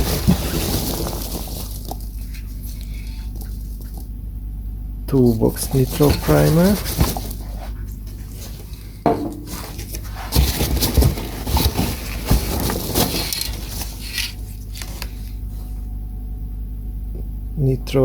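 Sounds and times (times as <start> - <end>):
steady low hum: 0.0 - 18.0
aerosol cans knocking and clinking: 9.1 - 9.5.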